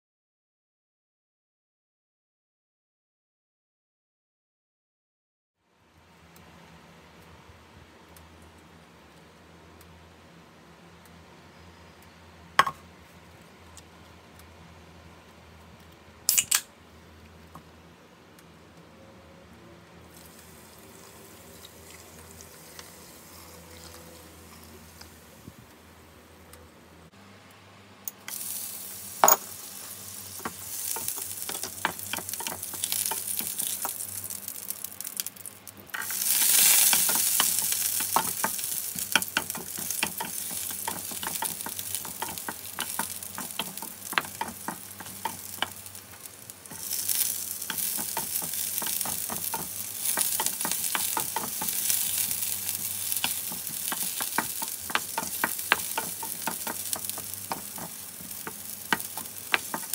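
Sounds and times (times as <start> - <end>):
butter sizzling in frying pan: 20.1 - 26.1, 28.3 - 59.9
spatula scraping pan: 29.3 - 34.0, 36.0 - 45.9, 46.7 - 59.9.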